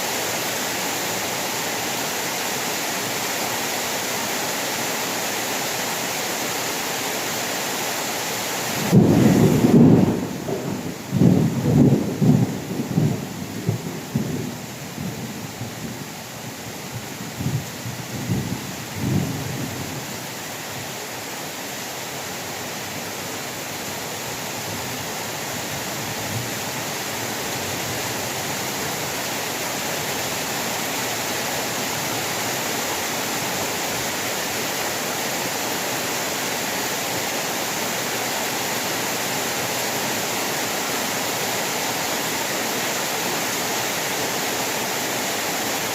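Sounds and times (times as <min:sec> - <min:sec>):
heavy rain falling: 0:00.0 - 0:45.9
thunder rumble: 0:08.8 - 0:15.3.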